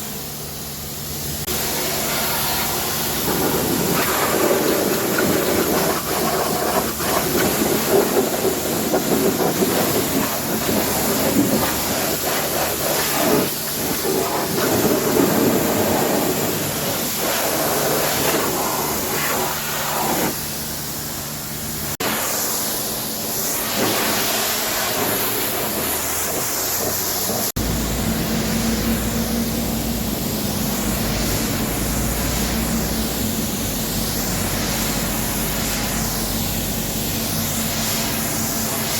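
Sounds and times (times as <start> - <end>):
high-pressure water spray hissing: 0.0 - 38.9
low steady hum: 27.6 - 38.0.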